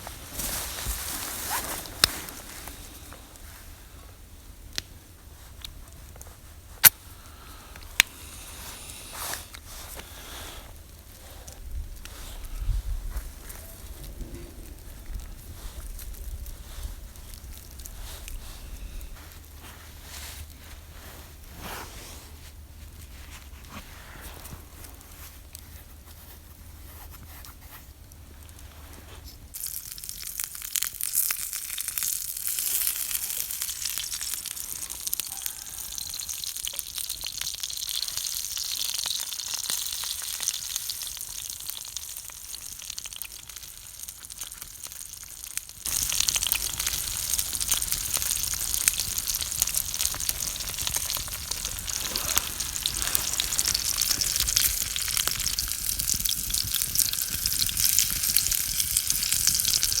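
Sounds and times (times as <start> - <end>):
meatballs sizzling in a pan: 29.5 - 60.0.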